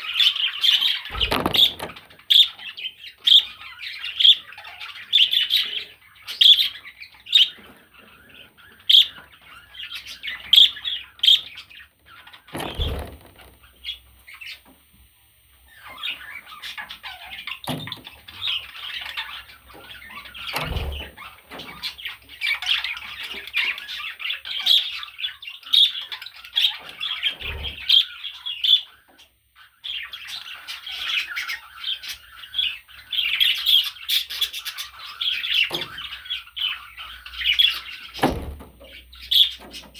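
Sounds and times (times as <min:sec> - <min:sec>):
soft thumps: 0:01.1 - 0:02.1.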